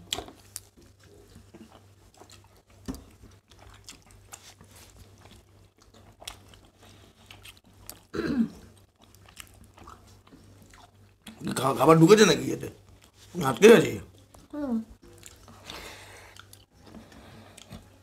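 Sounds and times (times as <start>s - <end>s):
people chewing: 0.0s - 12.0s, 12.8s - 18.0s.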